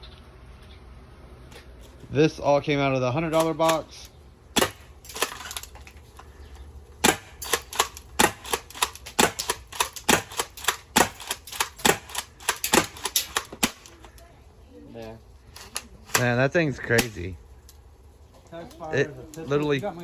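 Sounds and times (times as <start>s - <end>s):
airsoft gun shots: 4.6s - 5.5s, 7.0s - 14.0s.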